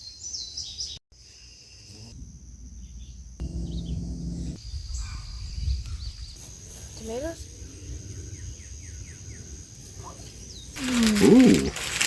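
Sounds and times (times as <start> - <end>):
insects buzzing: 1.2 - 12.0
low steady hum: 2.2 - 4.7
bird chirps: 2.7 - 11.6.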